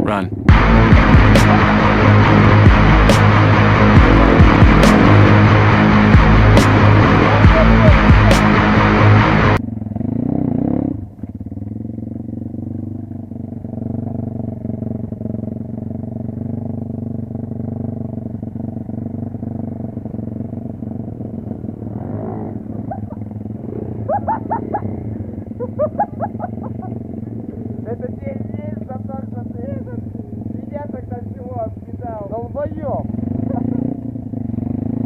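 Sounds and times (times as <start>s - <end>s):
motorcycle engine running: 0.0s - 35.0s
short rising yelps: 22.0s - 26.8s.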